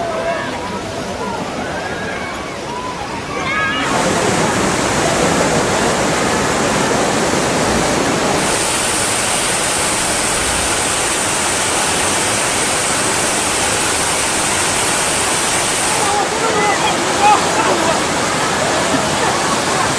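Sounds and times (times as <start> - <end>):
floodwater rushing: 0.0 - 19.9
high hiss: 5.9 - 19.9.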